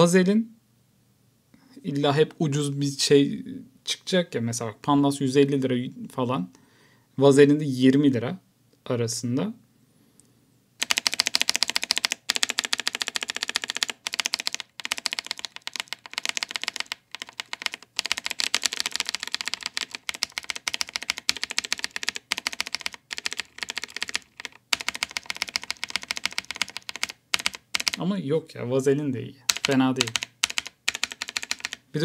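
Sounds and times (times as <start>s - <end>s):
mechanical keyboard typing: 10.8s - 28.0s, 29.5s - 32.0s.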